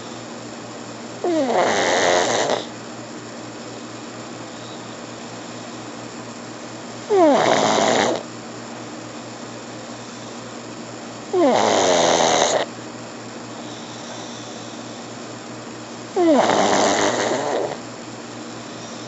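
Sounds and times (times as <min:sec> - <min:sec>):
dog snoring: 0:01.2 - 0:02.7, 0:07.0 - 0:08.3, 0:11.3 - 0:12.7, 0:13.5 - 0:15.1, 0:16.2 - 0:17.8, 0:18.6 - 0:19.0.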